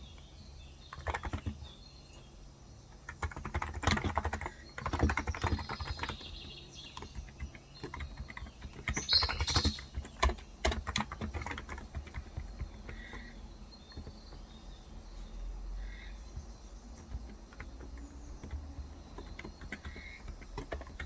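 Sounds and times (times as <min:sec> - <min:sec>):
keyboard typing: 0:00.9 - 0:01.7, 0:02.9 - 0:15.0, 0:16.2 - 0:21.0.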